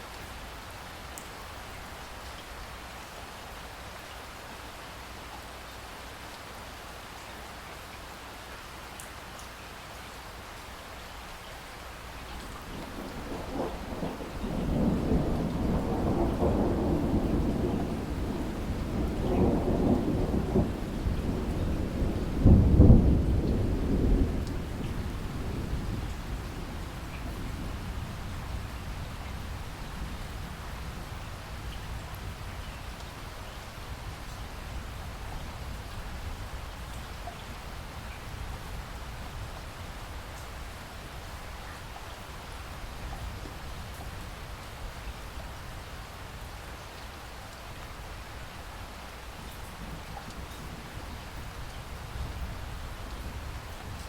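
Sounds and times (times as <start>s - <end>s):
steady rain: 0.0s - 54.0s
thunder rolling: 12.6s - 28.7s.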